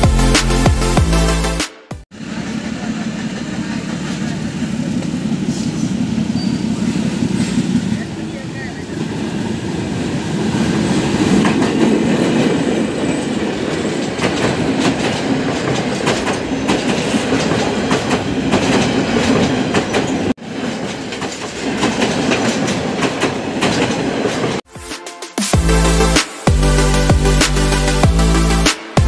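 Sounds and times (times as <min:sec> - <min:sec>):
train passing with rumble: 0:02.1 - 0:24.7
wheels clattering over rail joints: 0:11.1 - 0:24.6.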